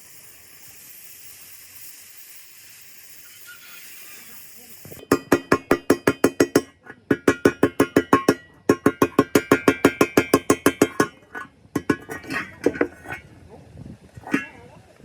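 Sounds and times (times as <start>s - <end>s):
hammer striking metal: 5.0s - 13.2s, 14.3s - 14.5s.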